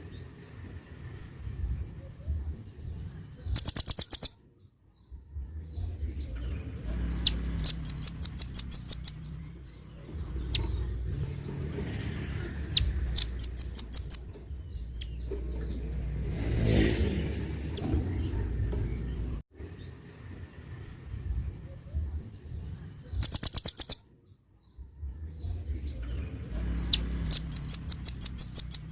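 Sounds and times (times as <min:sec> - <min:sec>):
bird calling with rattling high notes: 0:03.4 - 0:04.4, 0:07.1 - 0:09.4, 0:12.8 - 0:15.7, 0:23.1 - 0:24.0, 0:26.8 - 0:28.9
low rumble: 0:05.0 - 0:08.1, 0:24.7 - 0:27.6.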